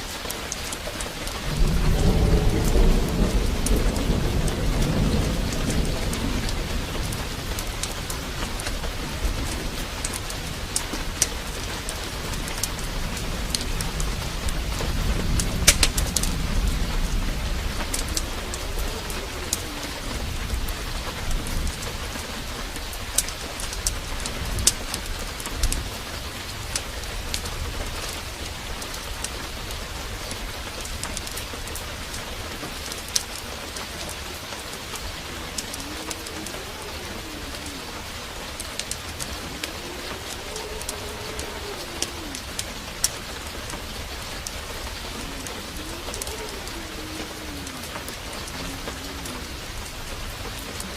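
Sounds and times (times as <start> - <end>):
heavy rain: 0.0 - 50.9
low thunder rumble: 0.0 - 50.9
sharp ticks and pops: 0.1 - 19.7.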